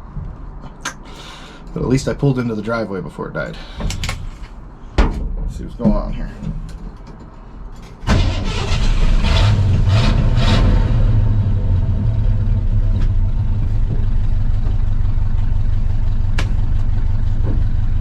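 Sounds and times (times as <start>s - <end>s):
truck engine starting and revving: 8.0s - 17.3s
truck engine idling: 11.5s - 18.0s.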